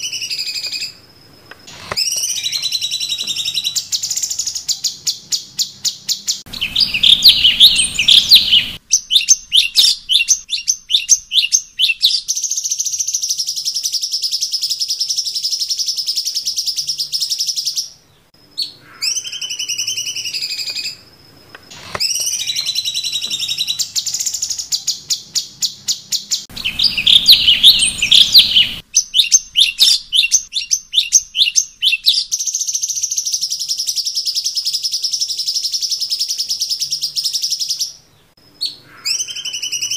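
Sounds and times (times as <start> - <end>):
songbird singing trills: 0.0 - 39.9
wavering falling whistles: 6.5 - 10.2, 26.4 - 30.4.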